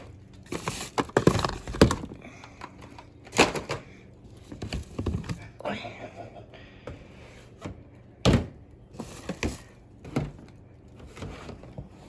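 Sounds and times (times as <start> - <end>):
household products thumping down: 8.2 - 8.6.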